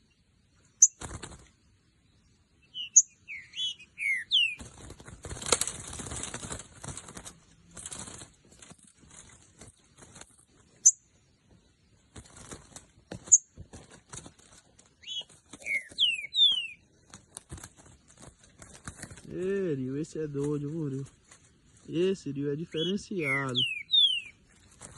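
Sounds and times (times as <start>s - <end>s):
bird wings flapping: 0.8s - 1.6s, 4.3s - 10.8s, 12.0s - 19.6s, 20.2s - 22.0s, 22.8s - 24.9s
bird chirps: 2.0s - 4.7s, 10.6s - 11.8s, 14.9s - 17.0s, 21.9s - 24.8s
whistled bird calls: 2.6s - 4.6s, 15.0s - 16.8s, 22.6s - 24.4s.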